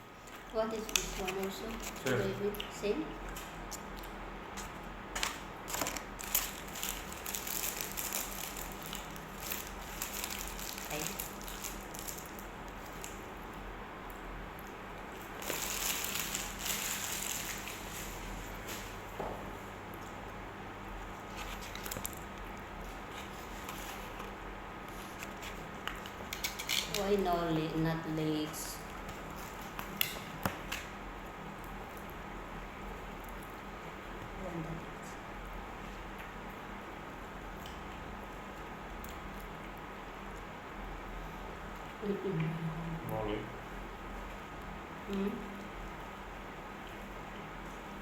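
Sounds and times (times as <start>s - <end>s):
low steady hum: 0.0s - 48.0s
clicks and rustles of eating: 0.2s - 20.4s, 21.0s - 27.3s, 28.6s - 31.0s, 31.6s - 34.4s, 37.2s - 40.6s
food wrapper crinkling: 4.6s - 13.2s, 15.2s - 18.9s, 21.2s - 22.4s.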